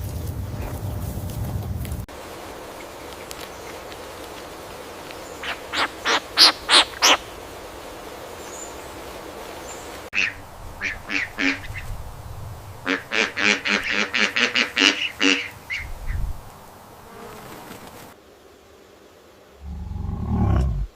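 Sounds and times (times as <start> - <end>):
bird calling: 5.2 - 7.3, 9.6 - 11.9, 12.8 - 16.2.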